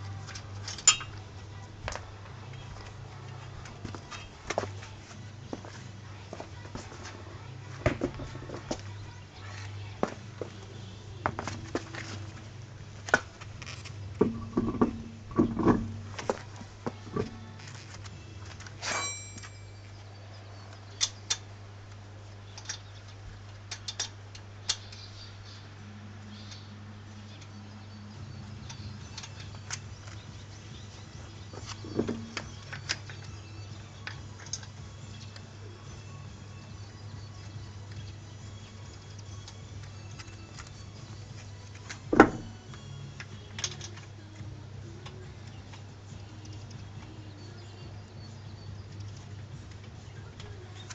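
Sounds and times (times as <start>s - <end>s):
low steady hum: 0.0s - 50.9s
clicks and knocks on car wheel: 14.2s - 16.4s.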